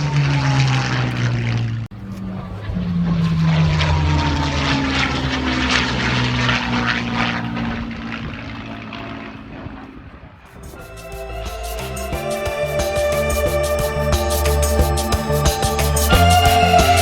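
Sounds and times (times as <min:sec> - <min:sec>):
propeller aircraft passing: 0:00.0 - 0:17.0
music: 0:10.6 - 0:17.0.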